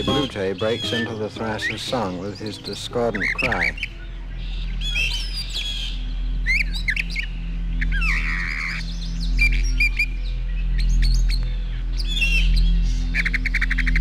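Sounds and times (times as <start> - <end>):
bird singing varied phrases: 0.0 - 14.0
low steady hum: 0.0 - 14.0.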